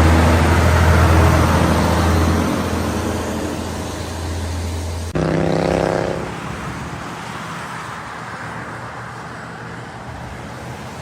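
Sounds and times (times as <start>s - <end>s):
truck engine droning: 0.0s - 7.2s
passing truck engine: 0.0s - 11.0s
road noise: 0.0s - 11.0s.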